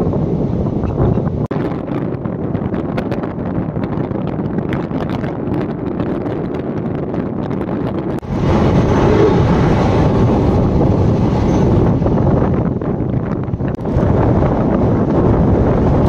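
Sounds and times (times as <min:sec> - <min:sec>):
wind buffeting microphone: 0:00.0 - 0:16.0
train coaches rumbling and clattering: 0:08.2 - 0:16.0.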